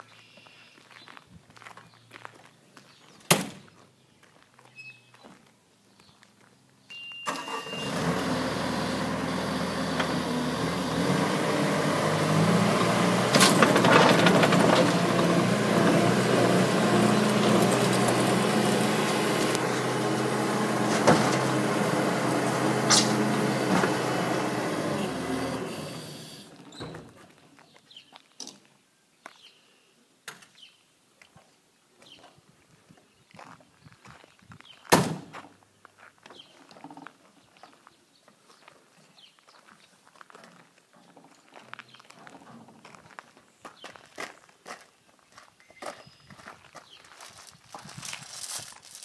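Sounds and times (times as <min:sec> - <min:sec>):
skid steer engine running: 0:07.3 - 0:27.1.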